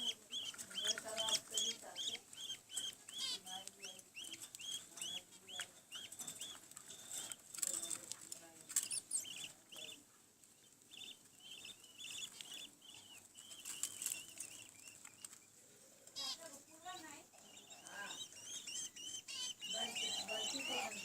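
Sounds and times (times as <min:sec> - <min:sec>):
chicks begging cheeps: 0:00.0 - 0:07.3, 0:08.8 - 0:10.0, 0:16.1 - 0:21.0
scratchy rustles: 0:12.1 - 0:17.2.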